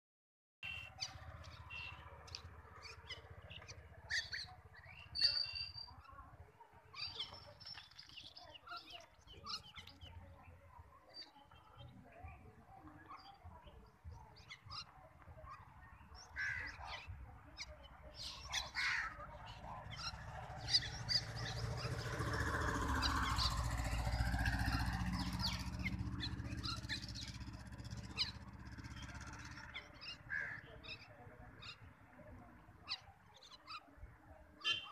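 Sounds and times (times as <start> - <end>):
birds chirping: 0.6 - 34.9
crows cawing: 16.3 - 16.8, 18.7 - 19.2, 30.3 - 30.7.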